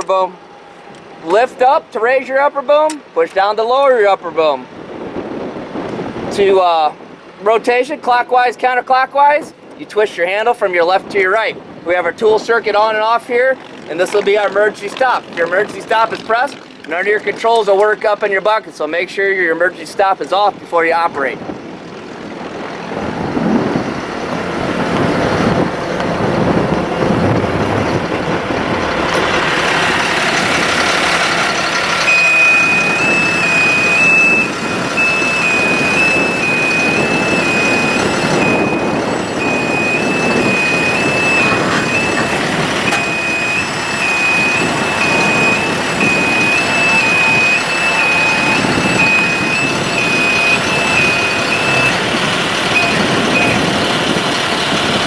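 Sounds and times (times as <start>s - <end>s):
truck engine running: 21.4s - 55.0s
electronic warning beeper: 30.6s - 53.8s.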